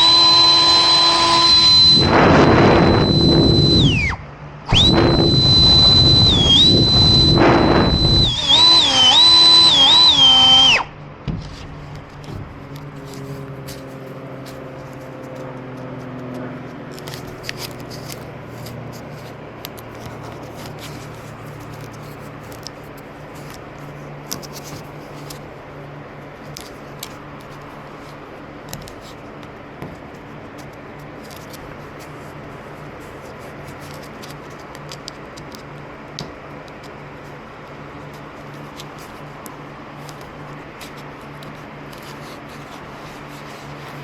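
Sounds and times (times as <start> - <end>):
steady low hum: 0.0 - 15.2
light clicks and scrapes: 11.4 - 25.5, 26.4 - 35.8, 36.7 - 44.0.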